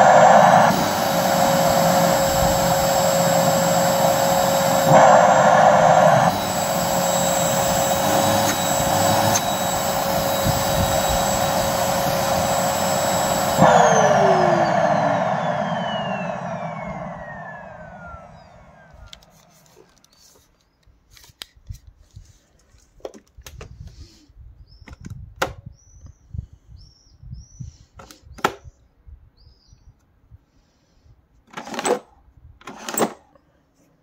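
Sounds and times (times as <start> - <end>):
vacuum cleaner motor winding down: 0.0 - 20.0.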